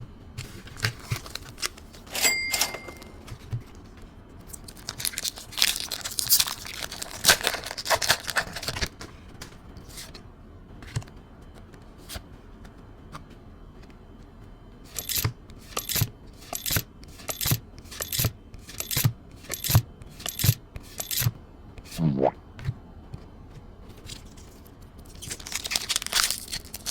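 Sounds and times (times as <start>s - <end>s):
foil pack tearing and crinkling: 0.6s - 2.1s, 4.5s - 9.0s, 24.1s - 26.9s.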